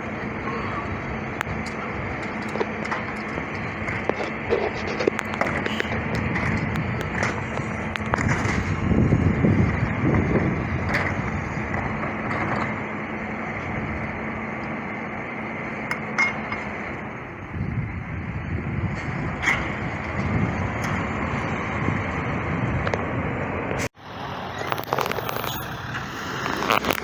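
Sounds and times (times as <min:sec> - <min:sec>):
garbage truck engine humming: 0:00.0 - 0:27.0
metal clanks and knocks: 0:15.9 - 0:16.8.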